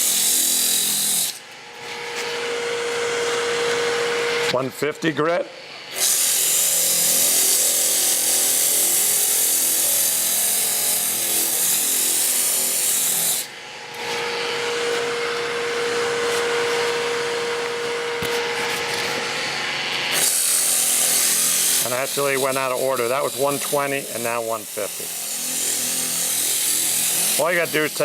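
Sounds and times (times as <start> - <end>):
sandpaper rubbing on turning wood: 15.8 - 17.2, 20.2 - 28.0.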